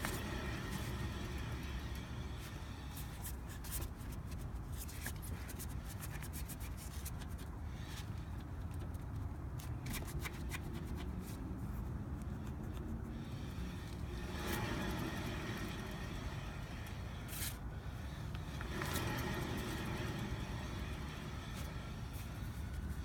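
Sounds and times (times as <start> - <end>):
steady low rumble: 0.0 - 4.7, 11.4 - 23.0
wheel bearing scratchy clicks: 12.8 - 23.0.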